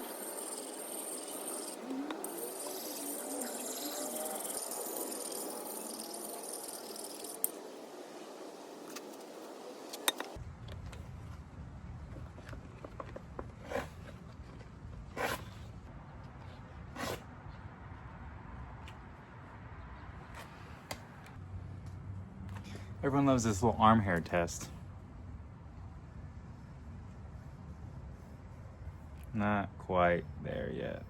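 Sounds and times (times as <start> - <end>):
sharpening stone scraping axe: 0.0 - 7.7, 17.0 - 17.2.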